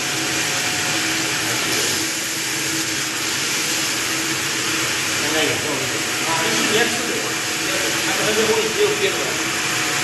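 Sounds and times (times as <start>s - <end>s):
pump motor humming and whining: 0.0s - 10.0s.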